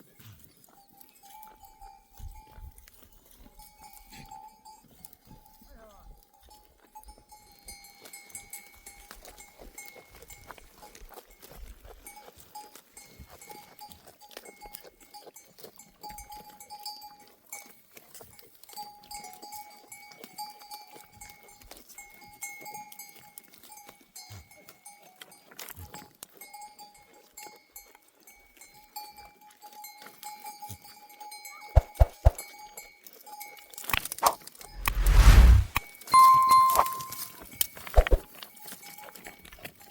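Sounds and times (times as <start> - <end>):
sheep bells clanking: 0.6 - 17.8.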